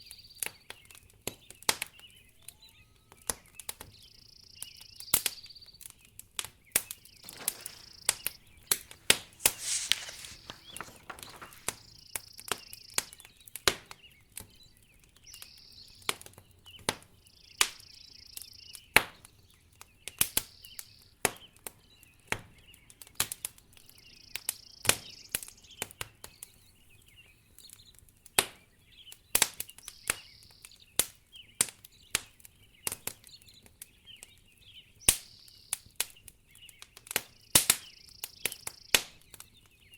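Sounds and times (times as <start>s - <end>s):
wood fire crackling: 7.2s - 12.0s
brief soft hiss: 7.3s - 11.9s.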